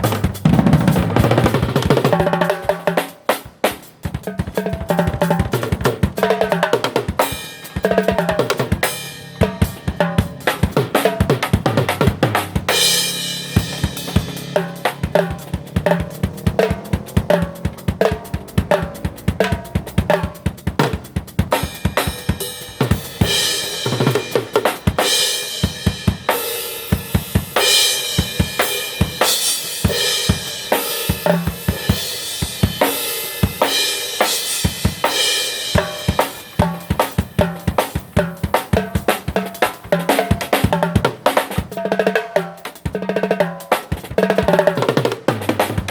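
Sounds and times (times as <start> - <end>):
drum kit groove: 0.0 - 45.9
pitched instruments: 6.2 - 26.4.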